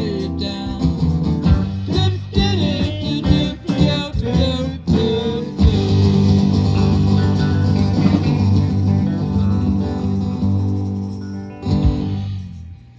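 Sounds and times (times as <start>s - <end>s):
bass guitar playing: 0.0s - 12.9s
electric guitars playing: 4.8s - 12.6s.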